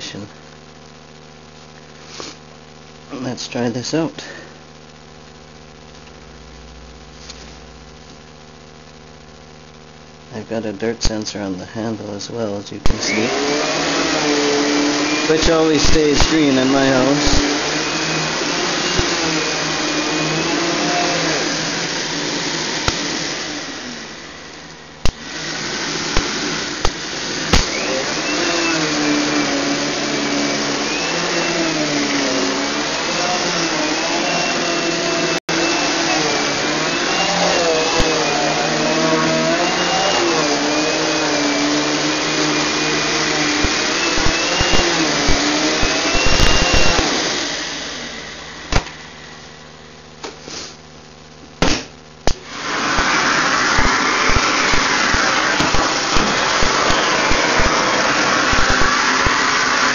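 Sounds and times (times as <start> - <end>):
vacuum airflow rushing: 12.9 - 50.9, 51.6 - 59.9
clicks: 24.6 - 25.2, 43.5 - 47.1, 58.5 - 59.4.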